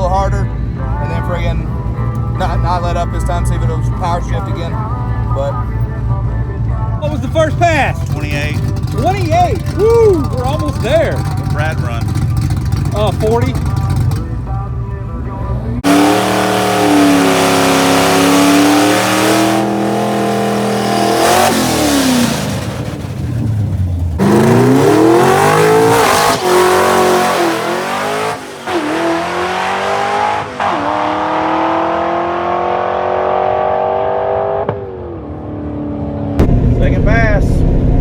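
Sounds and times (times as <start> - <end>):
race car engine at full throttle: 0.0 - 38.0.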